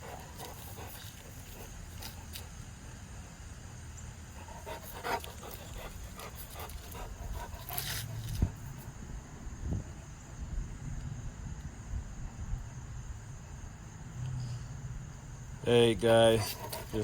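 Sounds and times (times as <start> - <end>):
dog panting: 0.0 - 3.1, 4.2 - 8.8, 15.9 - 17.0.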